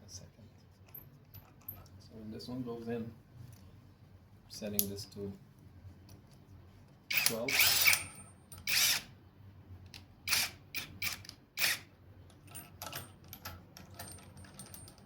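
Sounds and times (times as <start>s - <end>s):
cordless drill driving a bolt: 7.1s - 9.1s, 10.3s - 11.9s.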